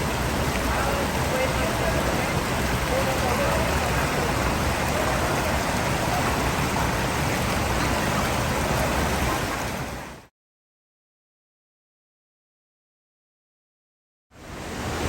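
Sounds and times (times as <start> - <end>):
waterfall rushing: 0.0 - 10.3, 14.4 - 15.0.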